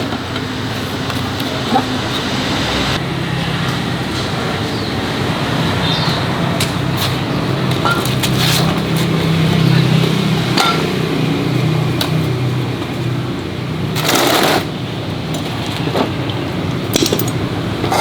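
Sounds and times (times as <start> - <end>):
sharp metallic clicks and knocks: 16.9 - 18.0.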